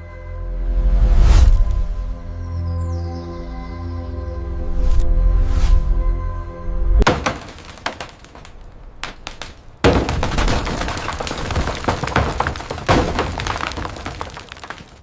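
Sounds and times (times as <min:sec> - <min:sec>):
breaking material clatter: 0:07.0 - 0:15.0
demolition crunching and scraping: 0:07.0 - 0:15.0
sharp crack: 0:07.0 - 0:15.0.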